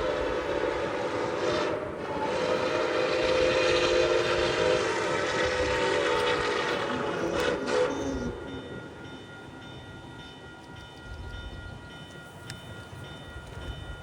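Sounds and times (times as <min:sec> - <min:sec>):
locomotive horn chord: 0:00.0 - 0:08.5
moving train noise: 0:00.0 - 0:14.0.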